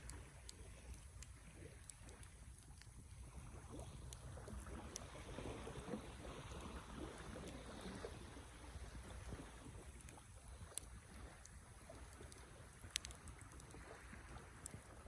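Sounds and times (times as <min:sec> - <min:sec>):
fire crackles and pops: 0:09.2 - 0:15.0.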